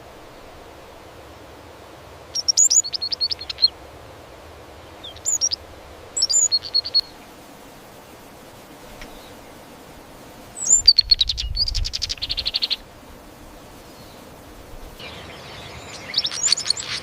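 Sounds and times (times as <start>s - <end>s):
faint steady hiss: 0.0s - 17.0s
bird chirping rapidly: 2.4s - 3.7s, 5.0s - 5.6s, 6.2s - 7.1s, 10.6s - 12.8s, 15.0s - 17.0s.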